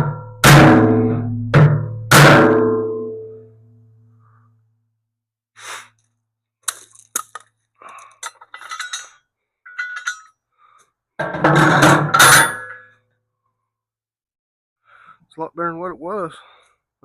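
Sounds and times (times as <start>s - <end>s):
metal parts clinking on bucket: 6.7s - 10.4s.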